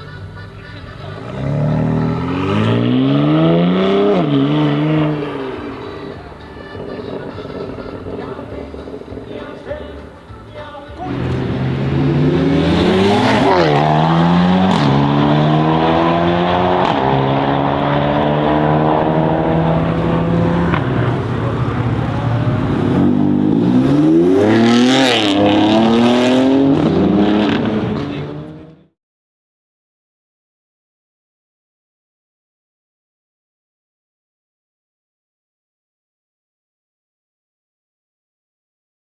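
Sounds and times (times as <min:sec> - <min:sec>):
car engine accelerating hard: 0:01.0 - 0:10.0, 0:11.0 - 0:28.9.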